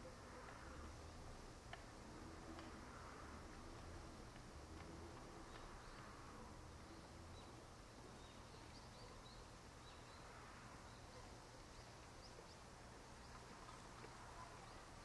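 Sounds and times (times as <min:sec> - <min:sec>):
outdoor background hiss: 0:00.0 - 0:15.0
small birds chirping: 0:02.6 - 0:15.0.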